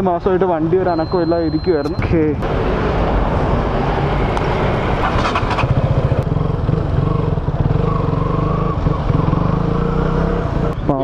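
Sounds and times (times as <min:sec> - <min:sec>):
motorcycle engine running: 0:04.7 - 0:11.0.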